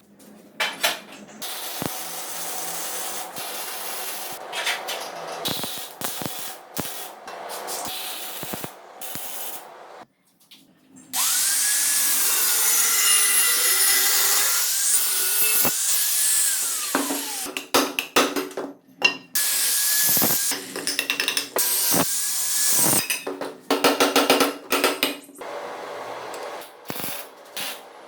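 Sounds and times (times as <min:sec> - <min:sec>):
power tool running: 0:11.2 - 0:17.5.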